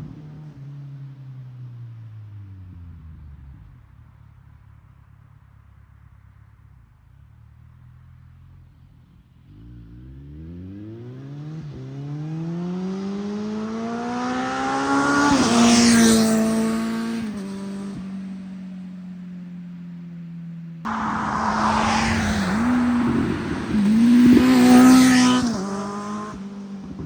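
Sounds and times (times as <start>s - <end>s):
motorcycle accelerating past: 9.7s - 18.2s, 20.9s - 27.0s.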